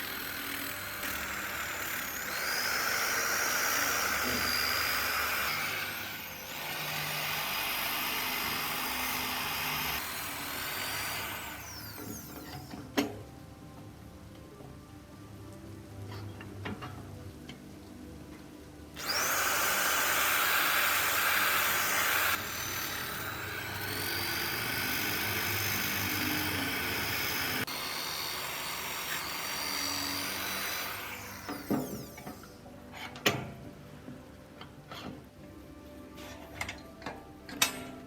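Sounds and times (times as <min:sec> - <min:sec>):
power tool on metal: 0:00.0 - 0:13.1, 0:19.0 - 0:32.6.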